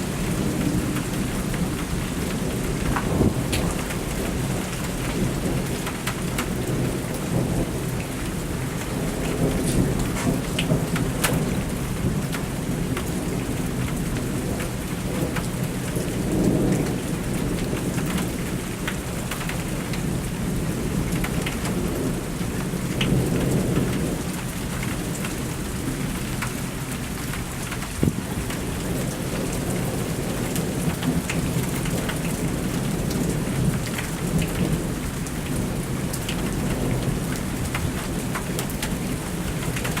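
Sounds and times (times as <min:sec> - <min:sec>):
rolling thunder: 0:00.0 - 0:07.9
heavy rain hitting surfaces: 0:00.0 - 0:40.0.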